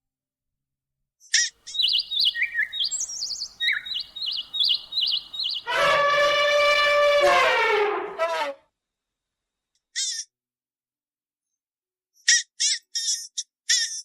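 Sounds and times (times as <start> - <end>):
songbird warbling: 1.7 - 5.8
loud long bird call: 1.7 - 7.6.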